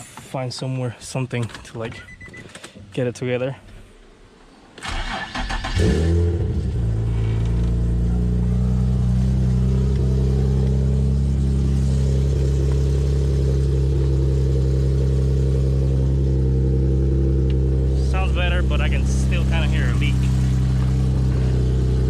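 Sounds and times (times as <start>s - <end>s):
car engine starting and idling: 4.7s - 22.0s.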